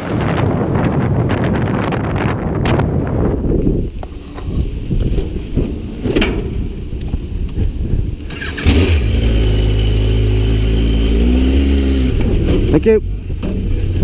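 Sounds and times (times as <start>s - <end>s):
wind rumble on microphone: 0.0s - 14.0s
motorcycle engine starting and idling: 8.2s - 14.0s.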